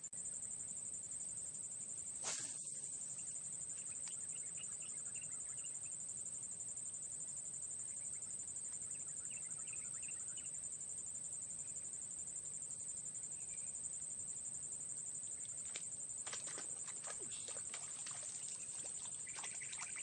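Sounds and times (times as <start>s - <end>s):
insects buzzing drone: 0.0s - 20.0s
faint bird chirps: 2.2s - 6.0s, 7.8s - 10.6s, 13.3s - 13.8s, 16.5s - 20.0s.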